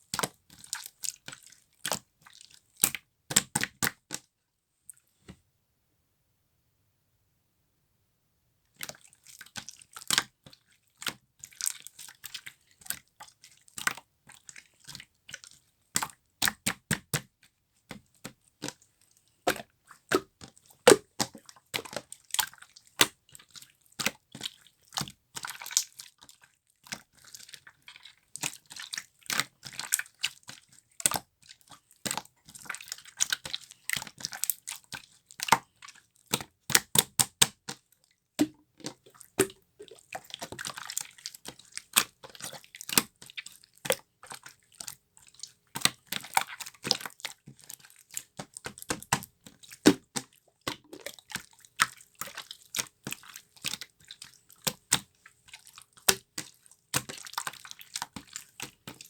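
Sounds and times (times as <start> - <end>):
slime squishing with clicks and pops: 19.5 - 23.2, 36.3 - 43.3, 48.2 - 52.0.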